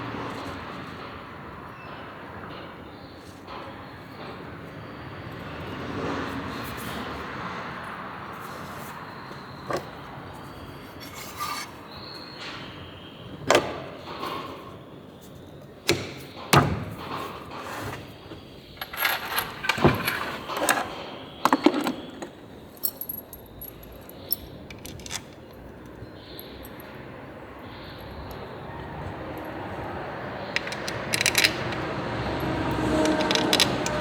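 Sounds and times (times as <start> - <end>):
metal tools clinking on workbench: 18.8 - 25.7, 30.4 - 34.0.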